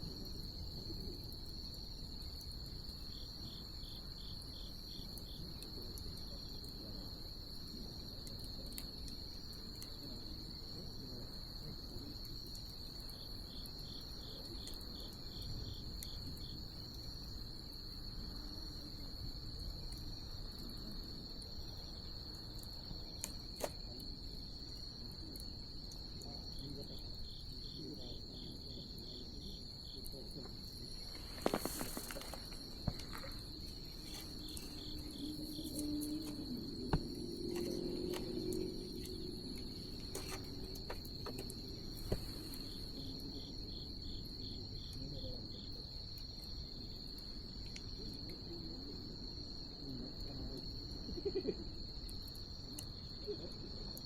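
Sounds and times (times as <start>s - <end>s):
crickets trilling: 0.0s - 54.0s
insect chirping in rapid runs: 0.0s - 54.0s
wood fire crackling and popping: 30.6s - 35.1s.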